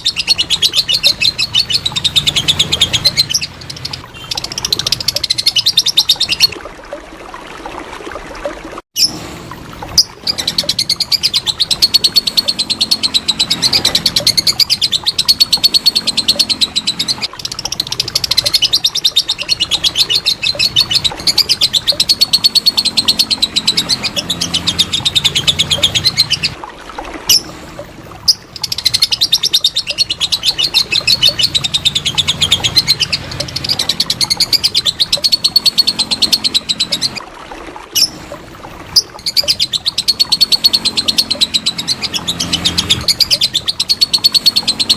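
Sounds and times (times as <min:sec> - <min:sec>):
lovebird chattering trill: 0:39.0 - 0:44.9.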